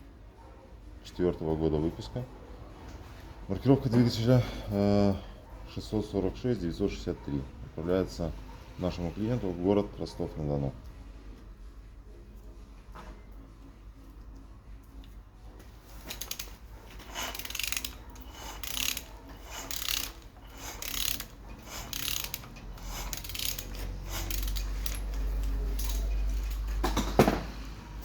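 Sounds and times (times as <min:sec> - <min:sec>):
mechanical rasping and ratcheting: 0:16.0 - 0:27.1.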